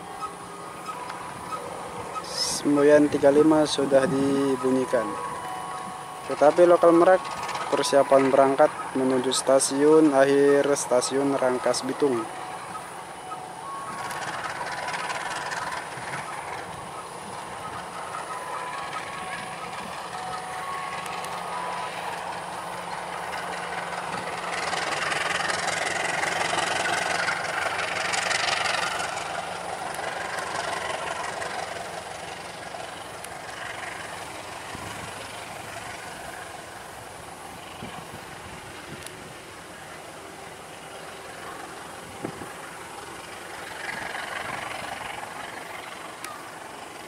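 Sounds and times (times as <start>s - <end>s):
diesel locomotive running: 0.0s - 47.0s
train wheels rolling on rails: 0.0s - 47.0s.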